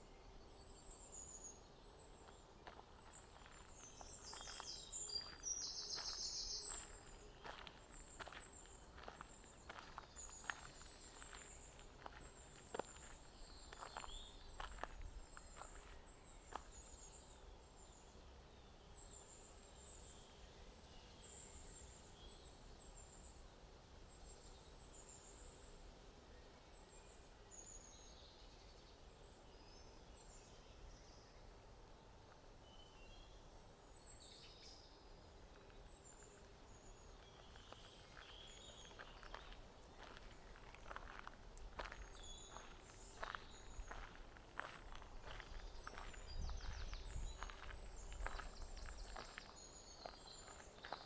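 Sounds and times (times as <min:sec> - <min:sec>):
songbirds chirping and trilling: 0:00.0 - 0:23.6, 0:24.2 - 0:51.0
footsteps: 0:02.6 - 0:16.8, 0:37.2 - 0:51.0.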